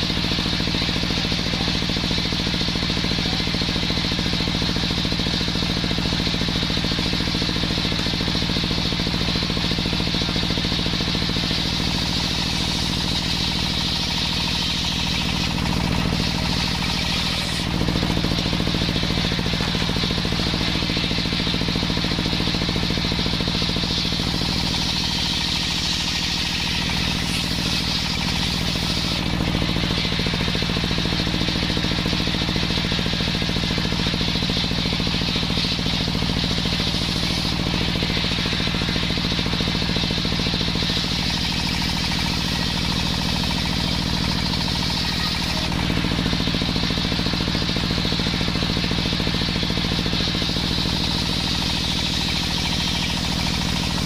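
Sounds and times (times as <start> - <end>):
engine drone: 0.0 - 54.0
saw blade whining in wood: 14.3 - 21.2.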